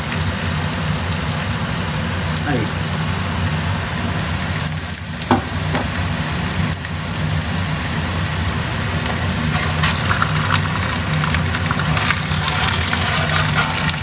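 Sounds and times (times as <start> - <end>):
potatoes sizzling on a griddle: 0.0 - 14.0.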